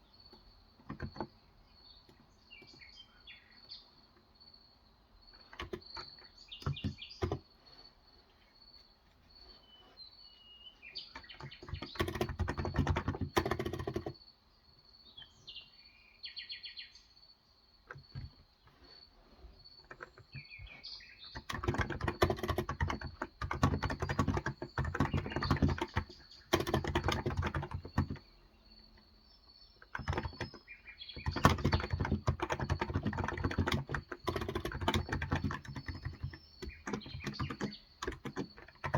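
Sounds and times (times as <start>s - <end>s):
small birds chirping: 0.0s - 38.9s
rapid keyboard key clicks: 0.8s - 1.3s, 5.4s - 7.4s, 11.1s - 14.2s, 17.9s - 18.4s, 19.9s - 28.3s, 29.8s - 38.9s.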